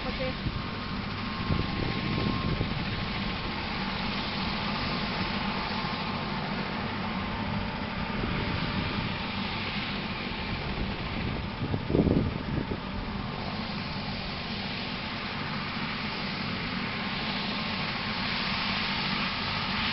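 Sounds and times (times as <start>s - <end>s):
faint turbine whine: 0.0s - 19.9s
helicopter rotor noise: 0.0s - 19.9s.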